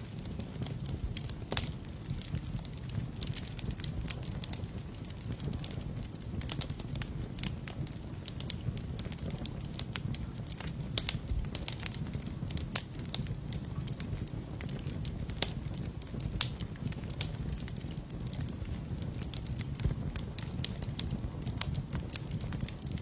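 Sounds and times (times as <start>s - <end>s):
fire crackling in fireplace: 0.0s - 23.0s.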